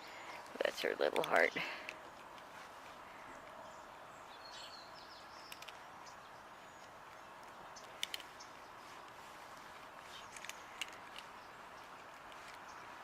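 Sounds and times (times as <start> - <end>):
outdoor background hiss: 0.0 - 13.0
faint bird chirps: 3.1 - 9.0
sharp little clicks: 5.3 - 6.2, 6.8 - 9.2, 10.1 - 12.8.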